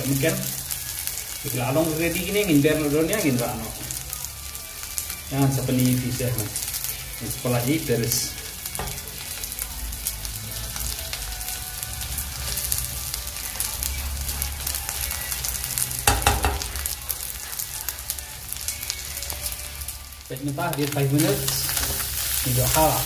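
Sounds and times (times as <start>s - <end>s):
food sizzling in oil: 0.0s - 23.0s
loud knock: 16.1s - 16.7s.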